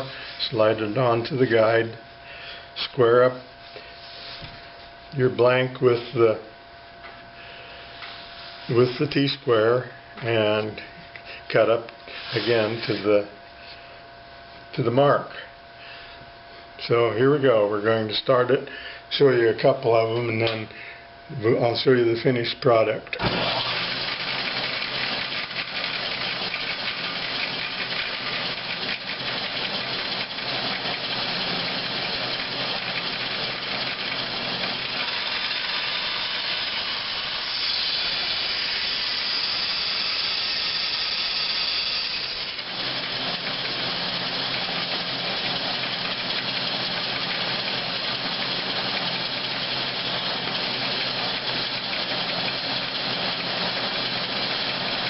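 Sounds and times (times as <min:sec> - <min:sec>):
band saw cutting wood: 0:23.2 - 0:55.0.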